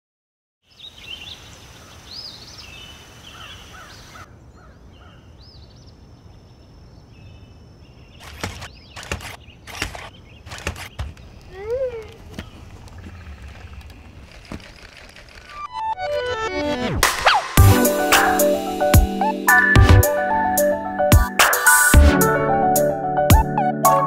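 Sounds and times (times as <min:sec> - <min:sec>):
birds chirping and singing: 0:00.7 - 0:14.6
sharp clicks: 0:08.2 - 0:15.8.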